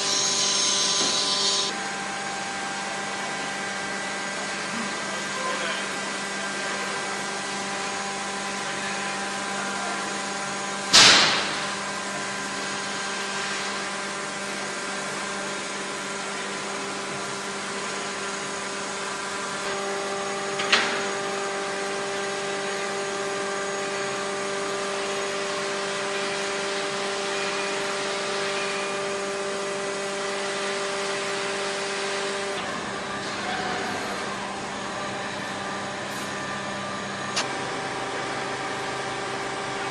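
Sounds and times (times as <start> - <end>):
high steady tone: 0.0 - 1.7
machinery hum: 0.0 - 3.3, 32.5 - 39.9
loud sharp knock: 10.9 - 11.7.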